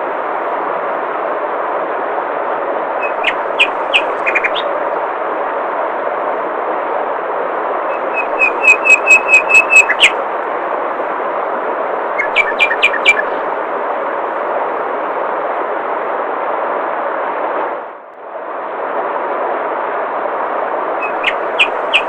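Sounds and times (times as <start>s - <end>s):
songbird singing: 3.0s - 4.8s, 7.9s - 10.2s, 12.1s - 13.4s, 21.0s - 22.0s.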